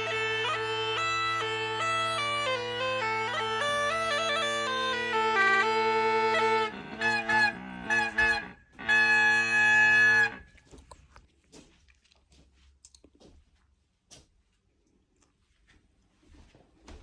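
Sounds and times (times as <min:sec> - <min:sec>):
bagpipe music: 0:00.0 - 0:10.6.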